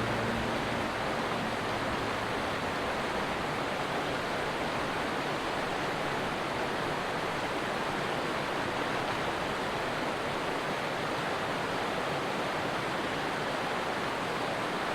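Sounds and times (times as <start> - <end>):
stream water rushing: 0.0 - 14.9.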